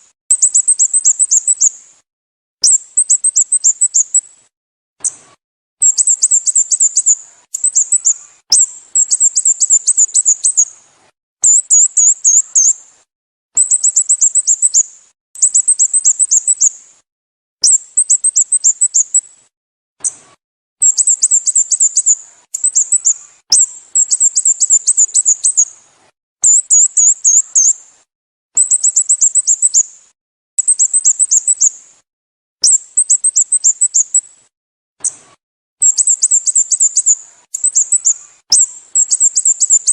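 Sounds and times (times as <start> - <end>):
bird chirping high-pitched phrases: 0.3 - 1.7, 2.6 - 4.2, 5.8 - 10.7, 11.4 - 12.8, 13.6 - 14.8, 15.4 - 16.7, 17.6 - 19.2, 20.8 - 25.7, 26.4 - 27.8, 28.6 - 29.9, 30.6 - 31.7, 32.6 - 34.3, 35.8 - 39.9.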